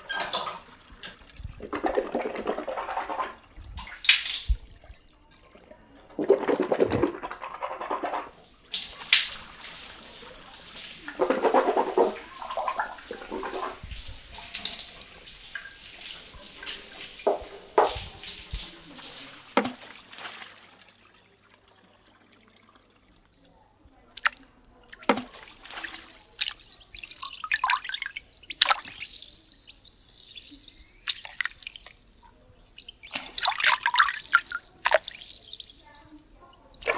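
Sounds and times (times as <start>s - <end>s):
water dripping: 0.0s - 36.9s
water splashing: 6.2s - 21.0s, 24.1s - 36.9s.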